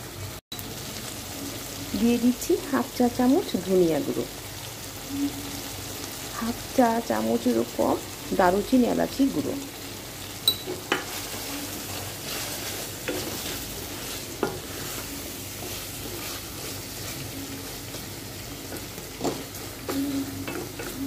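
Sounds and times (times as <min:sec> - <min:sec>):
curry sizzling in a pot: 0:00.0 - 0:21.0
spatula knocking and scraping pot: 0:10.5 - 0:21.0.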